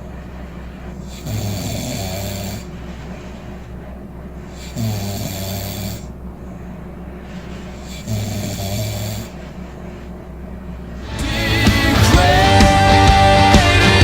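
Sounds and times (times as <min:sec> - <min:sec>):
low steady hum: 0:00.0 - 0:14.0
person snoring: 0:01.0 - 0:02.8, 0:04.5 - 0:06.2, 0:07.7 - 0:09.4, 0:11.0 - 0:14.0.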